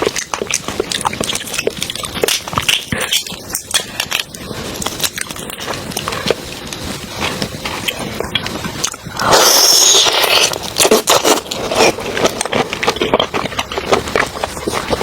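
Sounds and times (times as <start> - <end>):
wet chewing clicks: 0.0 - 15.0.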